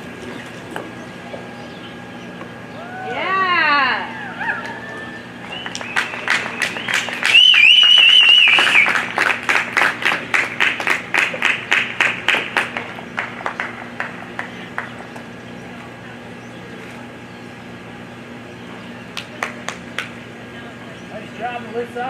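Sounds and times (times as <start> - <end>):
loud warbling whistle: 4.1 - 9.0
spectators applauding: 4.4 - 15.1, 19.1 - 20.2.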